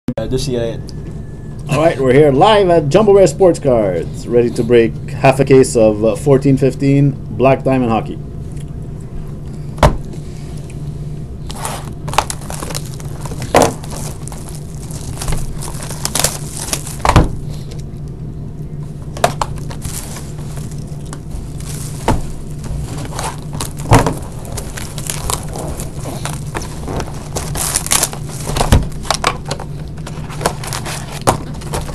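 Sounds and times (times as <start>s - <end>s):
steady low hum: 0.1s - 31.9s
packaging crinkling and tearing: 11.5s - 18.0s, 19.0s - 31.9s.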